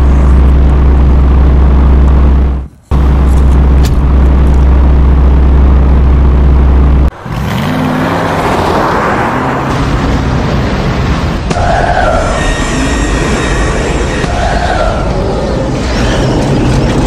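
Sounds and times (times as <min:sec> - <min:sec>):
car engine humming: 0:00.0 - 0:15.6
rushing engine sound: 0:00.0 - 0:17.0.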